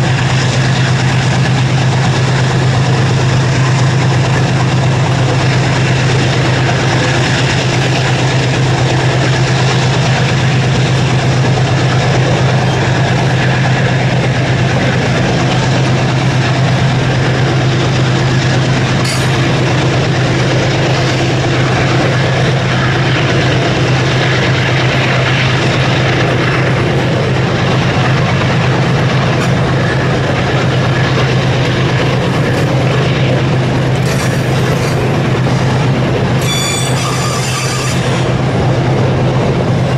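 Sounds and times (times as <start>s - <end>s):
diesel locomotive drone: 0.0s - 39.9s
wagons rolling on rails: 0.0s - 39.9s.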